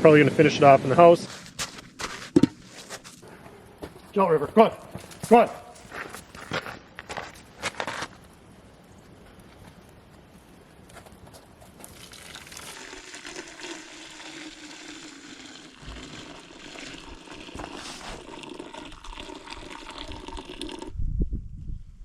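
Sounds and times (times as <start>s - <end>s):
syrup boiling in a pan: 11.8s - 20.9s.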